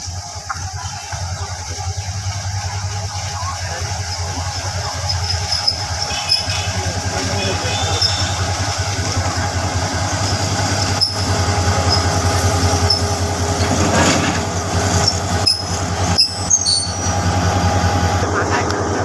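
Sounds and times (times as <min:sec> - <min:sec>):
locomotive engine drone: 0:00.0 - 0:19.0
train running gear squealing: 0:03.5 - 0:17.9.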